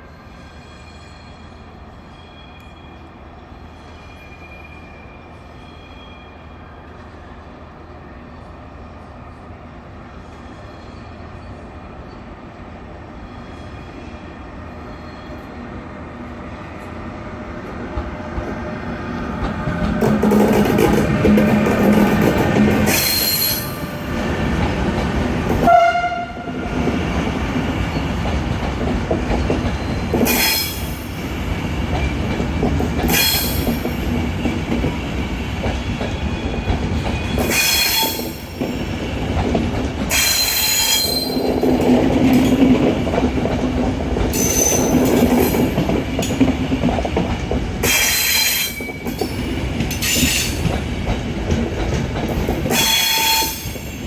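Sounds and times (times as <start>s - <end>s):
train wheels rumbling on rails: 0.0s - 54.0s
wheel squeal: 22.8s - 24.0s, 35.8s - 38.8s, 40.1s - 41.6s, 44.4s - 45.5s, 52.7s - 53.9s.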